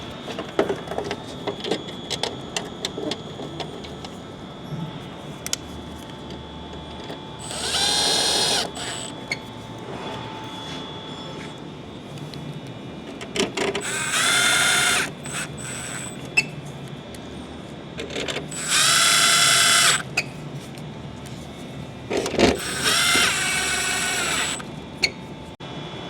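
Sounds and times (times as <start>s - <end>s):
power drill driving screws: 7.4s - 9.1s, 13.8s - 16.2s, 18.5s - 20.0s, 22.6s - 24.6s.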